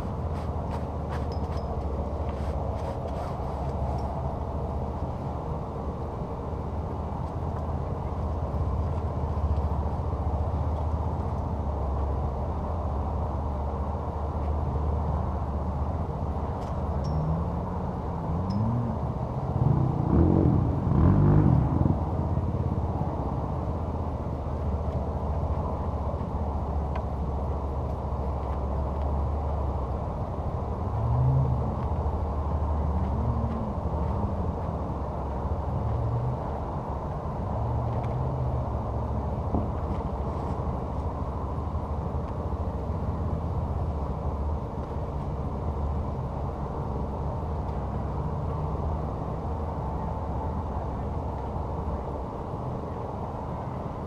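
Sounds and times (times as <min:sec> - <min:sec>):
vehicle engines revving: 0:14.9 - 0:44.4.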